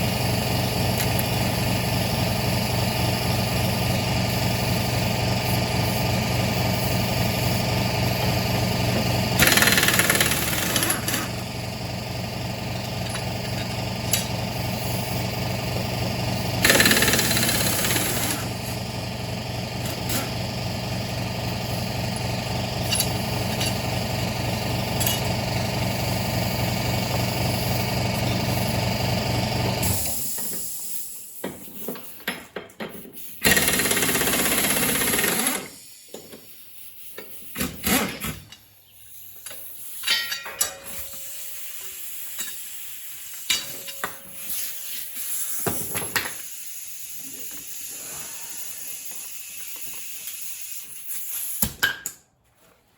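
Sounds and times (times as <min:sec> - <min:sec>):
lawnmower engine running: 0:07.9 - 0:29.8.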